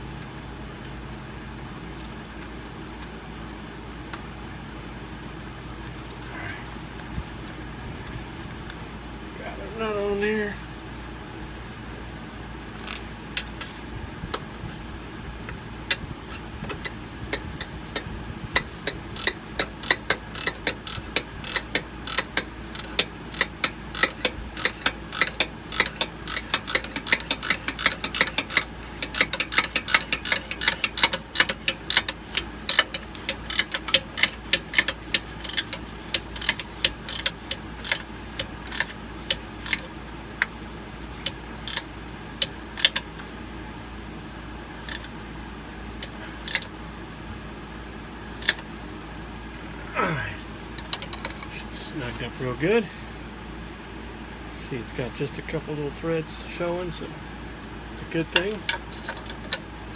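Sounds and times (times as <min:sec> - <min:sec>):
ratchet wrench clicking: 0:17.3 - 0:39.9, 0:41.2 - 0:43.3, 0:44.8 - 0:45.1, 0:45.9 - 0:46.7, 0:48.4 - 0:48.7, 0:50.8 - 0:51.5, 0:58.4 - 0:59.9.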